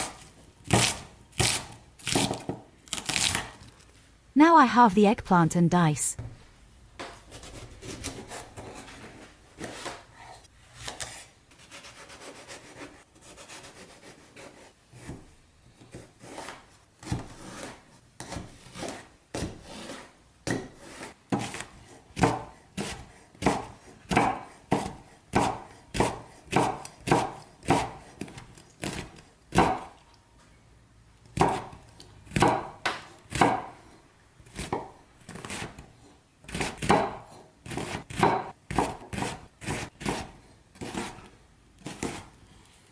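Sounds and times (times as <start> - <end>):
knife chopping on cutting board: 0.0 - 3.5, 15.9 - 30.0, 31.4 - 35.8, 36.4 - 42.3.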